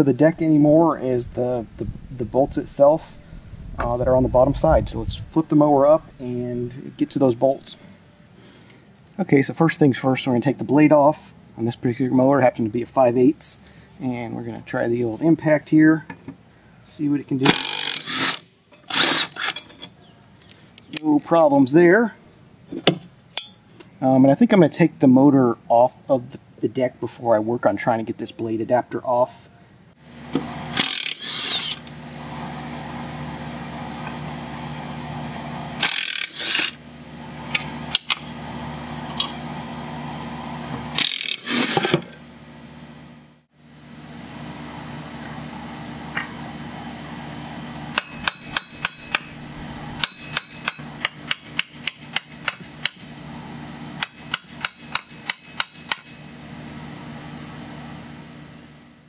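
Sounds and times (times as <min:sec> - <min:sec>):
steady low hum: 0:00.0 - 0:59.0
cordless impact wrench: 0:17.5 - 0:19.8, 0:30.3 - 0:32.0, 0:35.7 - 0:36.9, 0:37.5 - 0:38.4, 0:40.7 - 0:42.2, 0:47.9 - 0:53.2, 0:54.0 - 0:56.3.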